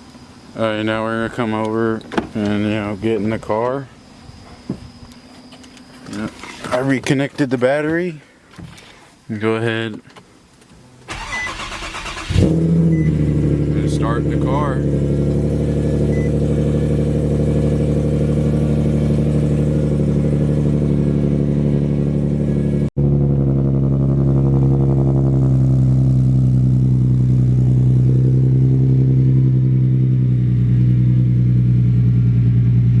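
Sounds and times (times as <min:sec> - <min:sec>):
car engine idling: 0:11.1 - 0:33.0.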